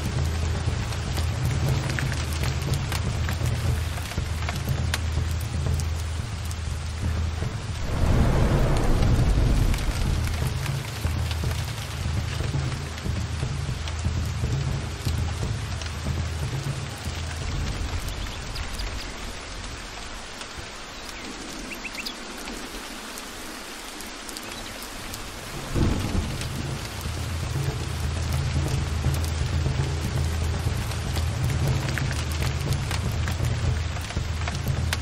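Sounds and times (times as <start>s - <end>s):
heavy rain: 0.0s - 35.0s
rolling thunder: 7.6s - 12.6s, 25.4s - 28.3s
sharp thunder crack: 7.7s - 11.7s.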